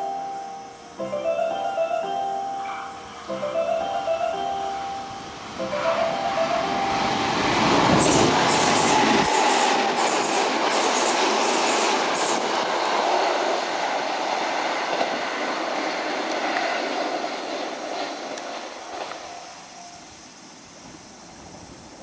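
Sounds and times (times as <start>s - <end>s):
electric train passing: 0.0s - 22.0s
wheels clacking over rail joints: 5.2s - 19.8s.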